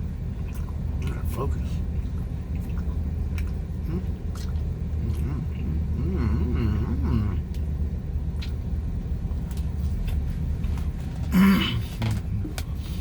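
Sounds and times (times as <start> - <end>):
car cabin rumble: 0.0 - 13.0
wordless vocal murmur: 5.0 - 7.4.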